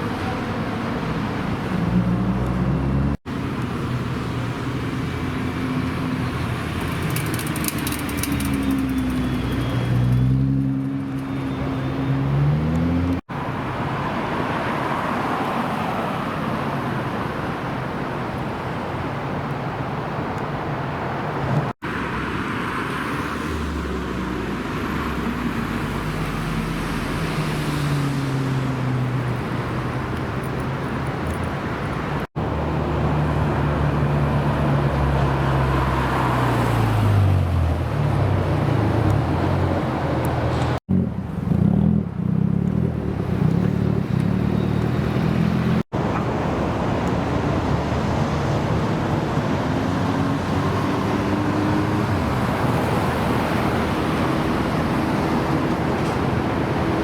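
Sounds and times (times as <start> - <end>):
car engines revving and accelerating: 0.0 - 6.9, 7.8 - 13.6, 32.0 - 57.0.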